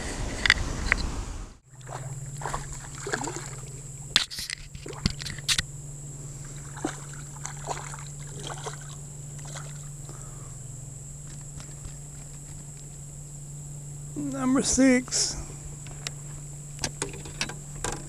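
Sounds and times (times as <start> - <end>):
steady low hum: 0.0 - 18.0
water sloshing and trickling: 1.6 - 5.6, 6.3 - 10.1
clicks and knocks in boat: 16.8 - 18.0.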